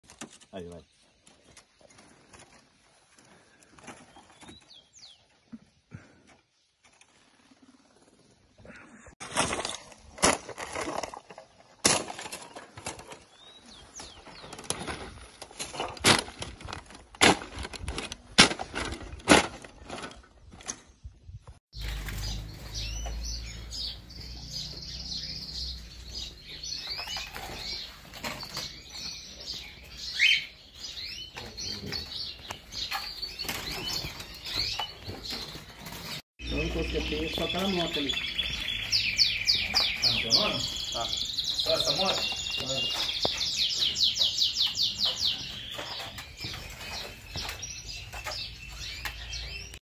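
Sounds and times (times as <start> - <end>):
small birds chirping: 0.2 - 9.2, 11.5 - 15.9, 20.5 - 49.8
birds fluttering against cage: 21.8 - 23.6.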